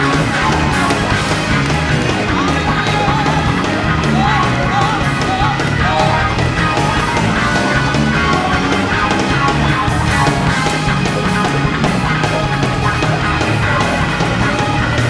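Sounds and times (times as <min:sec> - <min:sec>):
loud electric guitar music: 0:00.0 - 0:15.0.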